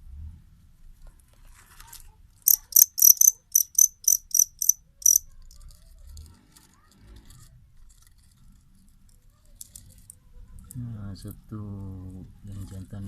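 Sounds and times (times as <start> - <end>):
faint rustle: 0.8 - 2.4
cricket chirping: 2.5 - 5.2.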